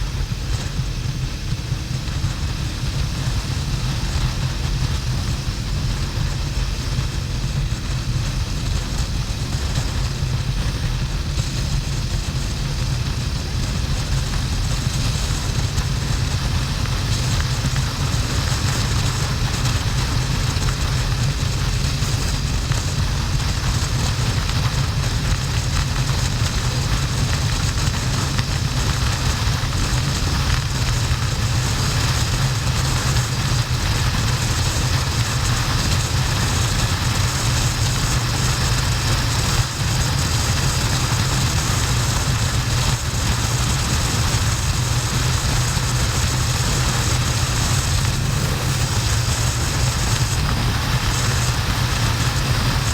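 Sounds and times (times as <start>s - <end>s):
wind rush on microphone: 0.0s - 52.9s
motorcycle engine cruising: 14.7s - 52.9s.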